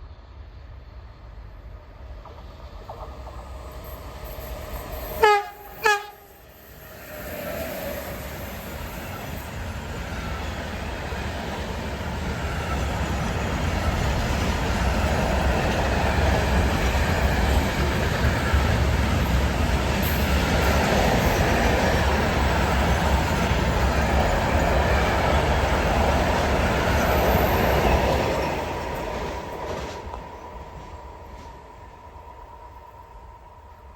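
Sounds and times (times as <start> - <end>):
train passing: 0.0 - 33.9.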